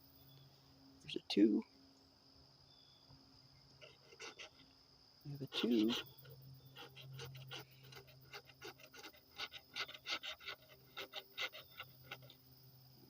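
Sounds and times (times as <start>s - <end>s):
lottery ticket being scratched: 5.5s - 6.0s.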